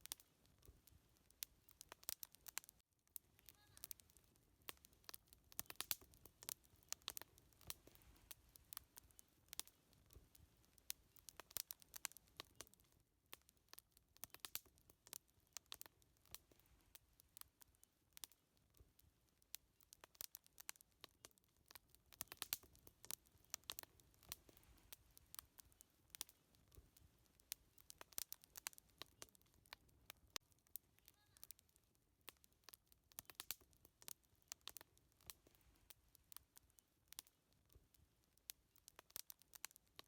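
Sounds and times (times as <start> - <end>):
wood fire crackling and popping: 0.0 - 40.0.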